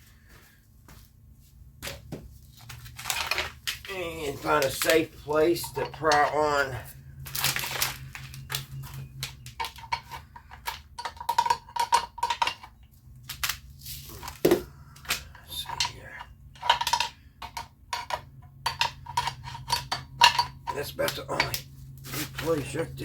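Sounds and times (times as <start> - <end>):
hand tools clinking on metal parts: 2.7 - 12.8, 15.0 - 23.0.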